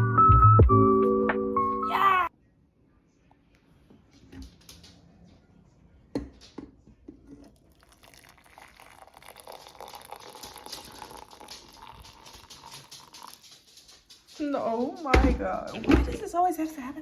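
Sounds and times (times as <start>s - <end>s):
crinkling and rustling: 9.2s - 16.8s.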